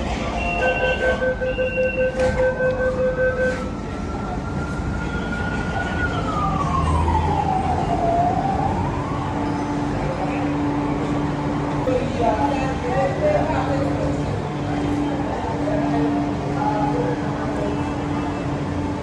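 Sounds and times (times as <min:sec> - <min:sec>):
train door warning beeping: 0:00.2 - 0:05.7.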